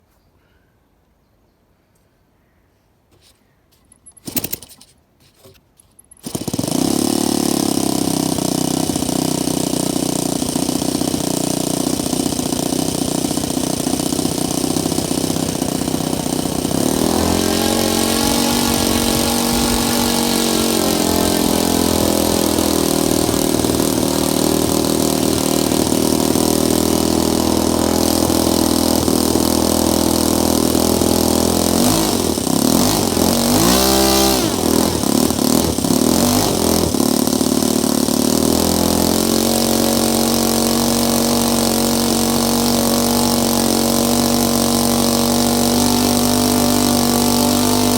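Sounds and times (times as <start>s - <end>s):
short clicks: 3.2s - 6.3s
model aircraft engine running: 3.9s - 47.9s.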